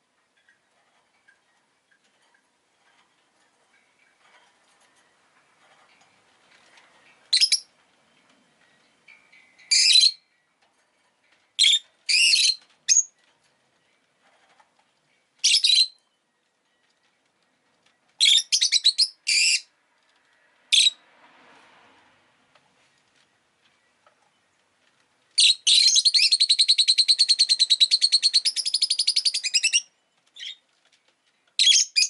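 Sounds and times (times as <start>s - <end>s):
lovebird chirping: 7.1s - 10.5s, 11.6s - 13.3s, 15.1s - 16.9s, 18.2s - 19.7s, 25.4s - 30.6s, 31.6s - 32.0s.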